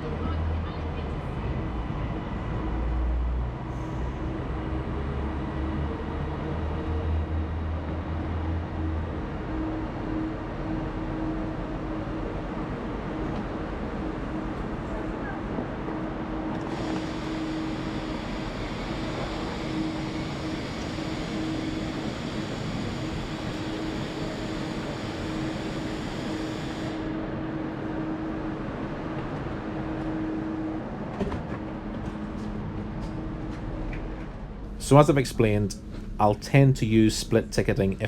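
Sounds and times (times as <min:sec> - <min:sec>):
train rumble: 0:00.0 - 0:38.0
low hum: 0:30.4 - 0:38.0.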